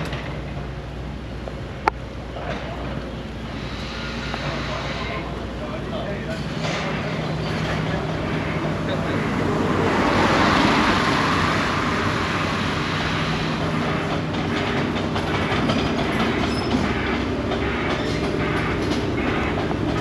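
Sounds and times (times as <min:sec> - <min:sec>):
train passing: 0:00.0 - 0:20.0
wheels clicking over rails: 0:12.8 - 0:20.0.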